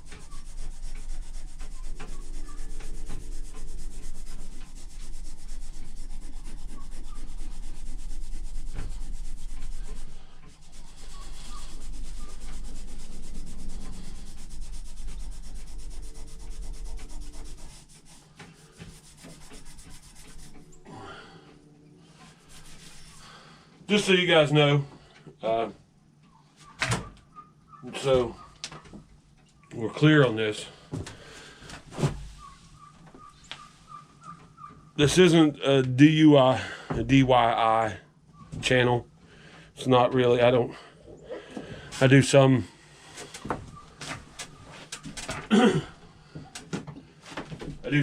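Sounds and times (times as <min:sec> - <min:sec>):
abrasive pad scrubbing steel: 0:00.0 - 0:24.2.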